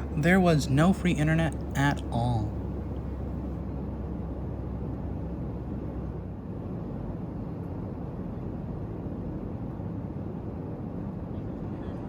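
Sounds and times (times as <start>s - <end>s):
airliner cabin engine rumble: 0.0s - 3.5s.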